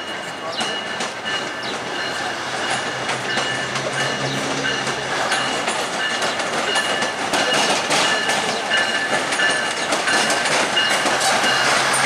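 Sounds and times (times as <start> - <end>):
train wheels clicking over rail joints: 0.0 - 12.0.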